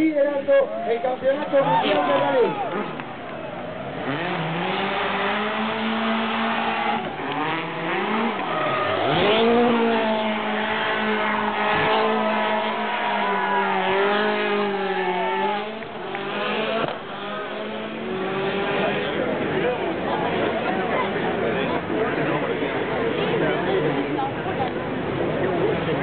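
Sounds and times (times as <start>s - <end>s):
rally car engine revving: 1.6s - 26.0s.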